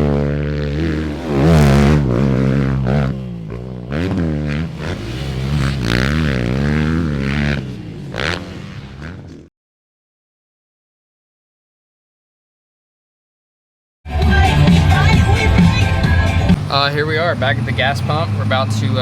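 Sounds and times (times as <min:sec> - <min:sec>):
dirt bike engine revving: 0:00.0 - 0:09.5, 0:14.3 - 0:19.0.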